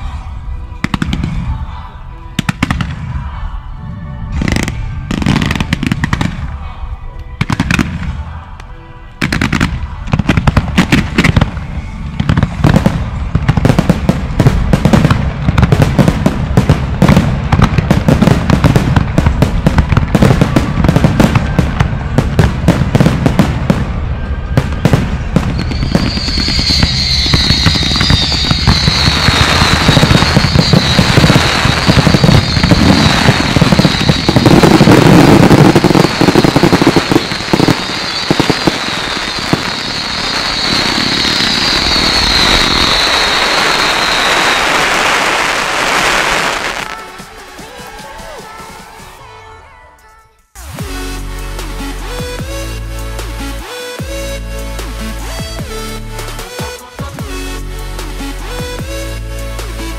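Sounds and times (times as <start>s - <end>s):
firework shells bursting: 25.5s - 45.0s
high wavering sound: 25.6s - 44.4s.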